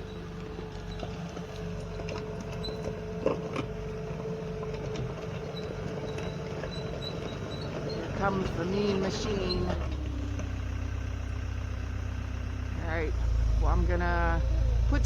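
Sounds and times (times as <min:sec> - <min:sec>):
skid steer engine running: 0:00.0 - 0:15.0.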